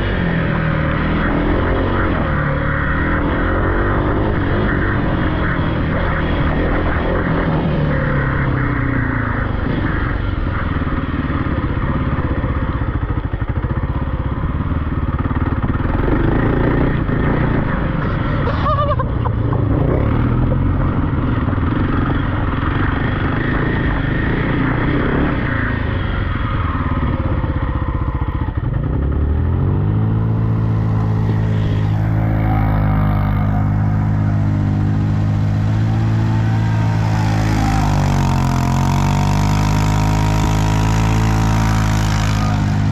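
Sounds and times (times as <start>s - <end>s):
single-cylinder engine revving: 14.9s - 42.9s.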